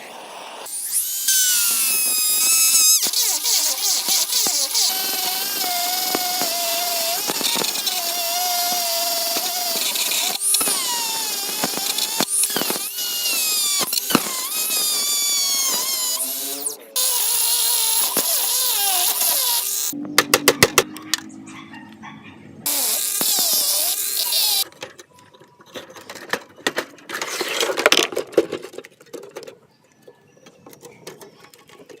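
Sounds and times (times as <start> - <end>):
small power tool whining: 0.6 - 20.0, 22.6 - 24.6.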